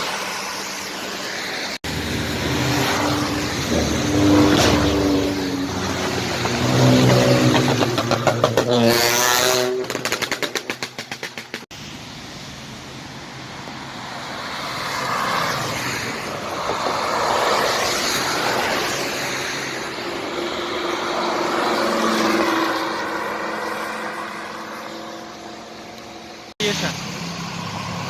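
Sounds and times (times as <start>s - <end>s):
tyres hissing on wet road: 0.0s - 8.2s, 11.7s - 28.0s
car engine revving: 1.9s - 11.6s.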